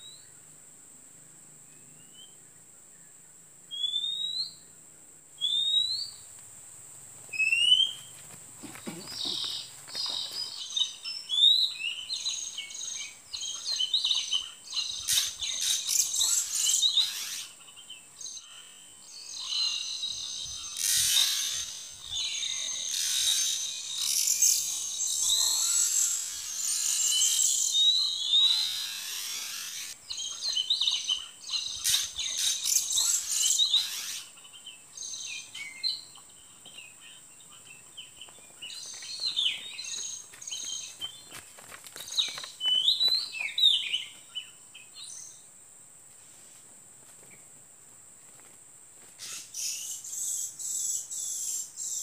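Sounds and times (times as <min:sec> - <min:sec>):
bird singing whistled phrases: 0:03.7 - 0:04.6, 0:05.4 - 0:06.1, 0:07.4 - 0:08.0
buzzing insect chorus: 0:05.4 - 0:45.5, 0:48.2 - 0:52.0
thin high insect whine: 0:07.1 - 0:36.9.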